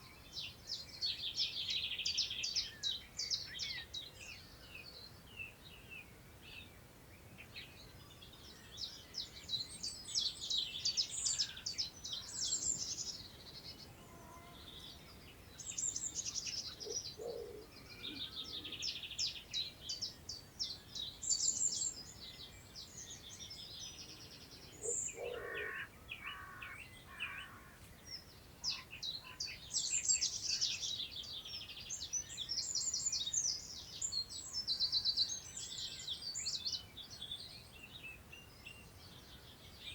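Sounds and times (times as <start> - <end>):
songbirds singing: 0.0 - 39.9
lower bird calls: 13.9 - 19.1, 24.7 - 27.8.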